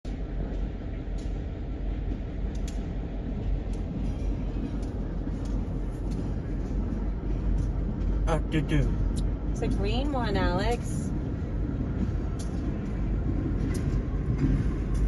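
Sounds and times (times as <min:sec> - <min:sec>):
faint rail clicks: 0:00.1 - 0:07.8, 0:12.0 - 0:15.0
train rumbling on rails: 0:00.1 - 0:15.0.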